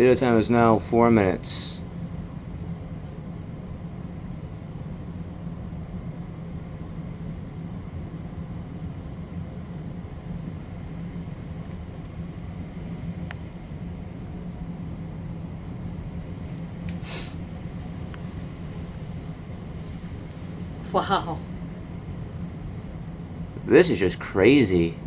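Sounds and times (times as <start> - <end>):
heavy rain hiss: 17.0 - 17.6.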